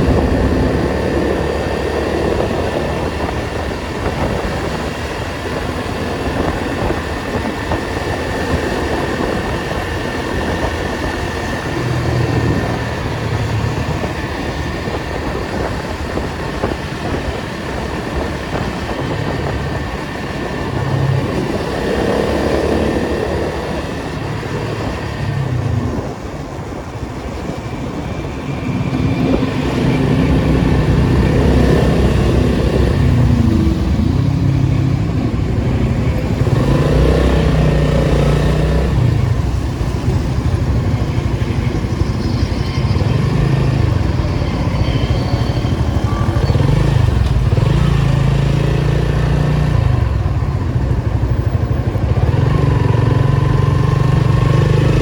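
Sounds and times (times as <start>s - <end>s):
car engine accelerating: 28.6s - 55.0s.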